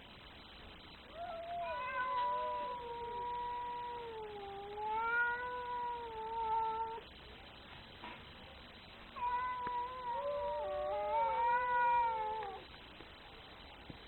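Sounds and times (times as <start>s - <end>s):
cat yowling: 1.1s - 7.0s, 9.2s - 12.6s.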